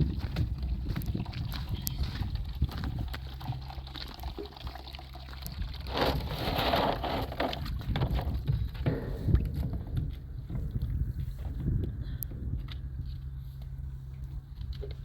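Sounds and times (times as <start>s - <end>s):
water gushing into a tank: 0.0s - 8.5s
low engine hum: 7.2s - 15.0s.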